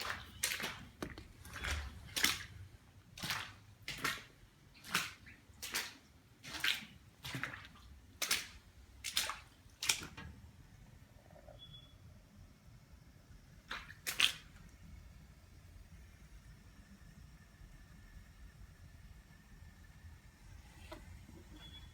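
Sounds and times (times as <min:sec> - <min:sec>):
water splashing: 0:00.0 - 0:10.3, 0:13.7 - 0:14.7.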